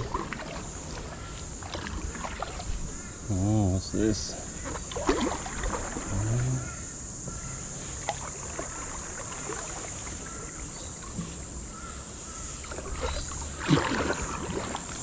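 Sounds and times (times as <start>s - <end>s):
kayak paddle strokes: 0.0s - 3.2s, 4.4s - 6.3s, 7.7s - 11.7s, 12.5s - 15.0s
water splashing against hull: 0.0s - 3.3s, 4.2s - 6.8s, 7.7s - 11.9s, 12.5s - 15.0s.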